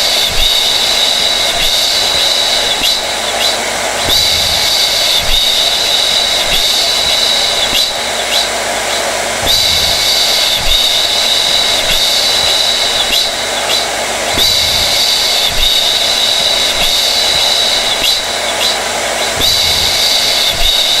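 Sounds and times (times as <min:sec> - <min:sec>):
hair dryer blowing with whine: 0:00.0 - 0:21.0.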